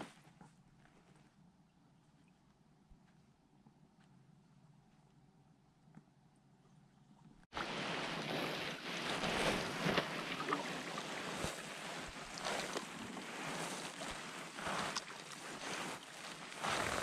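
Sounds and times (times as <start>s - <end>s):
water splashing: 7.6s - 17.0s.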